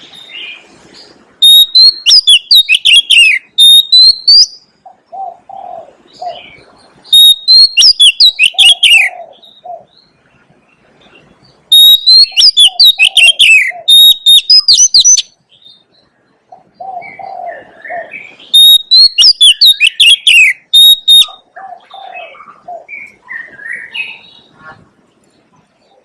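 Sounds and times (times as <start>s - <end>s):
bird whistling song: 0.0s - 10.1s, 11.1s - 24.6s.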